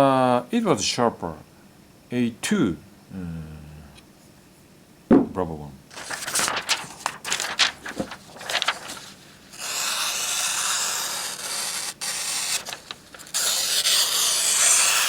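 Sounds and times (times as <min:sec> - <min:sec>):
knife taps: 0:05.1 - 0:05.4.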